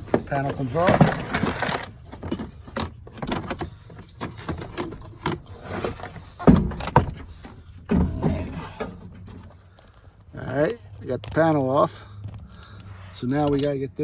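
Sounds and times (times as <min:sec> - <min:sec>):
plastic panel clicks and rattles: 0:00.0 - 0:09.4.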